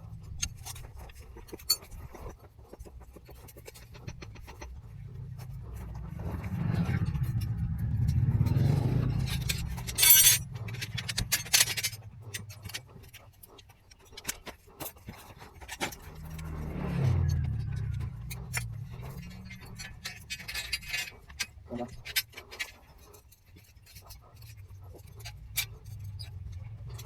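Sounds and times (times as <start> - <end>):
scraping and metal clinking: 0.2 - 27.0
excavator engine running: 3.9 - 13.6, 15.9 - 21.9.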